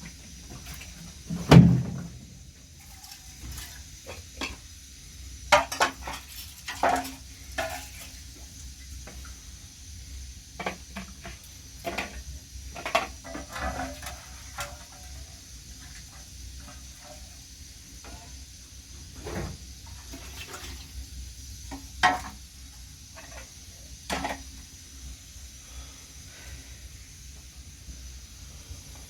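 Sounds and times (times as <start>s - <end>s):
loud thump: 1.5s - 2.4s.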